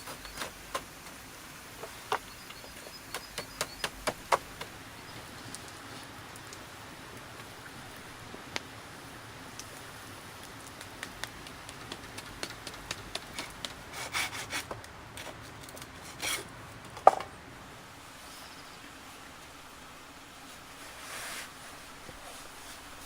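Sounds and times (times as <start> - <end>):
wood tapping and clicking: 1.8 - 4.7, 11.0 - 13.8.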